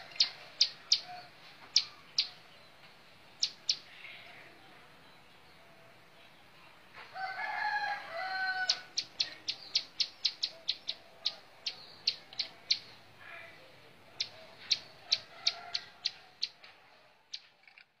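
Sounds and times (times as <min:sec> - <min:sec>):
bird chirping high: 0:08.7 - 0:13.0.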